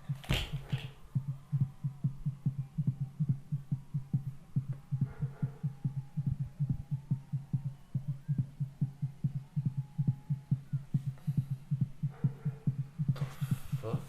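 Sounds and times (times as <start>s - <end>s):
muffled bass beat thumping: 0.0s - 14.0s.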